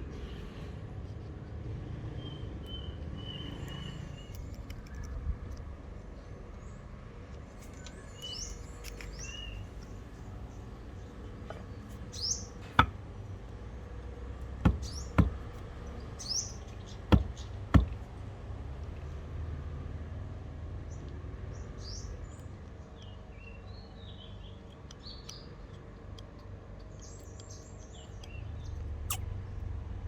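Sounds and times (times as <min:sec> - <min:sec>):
birds chirping: 0:02.2 - 0:05.3, 0:07.6 - 0:18.2, 0:20.9 - 0:25.8, 0:26.8 - 0:29.6
sharp knocks: 0:12.6 - 0:13.0, 0:14.6 - 0:15.6, 0:17.1 - 0:18.0.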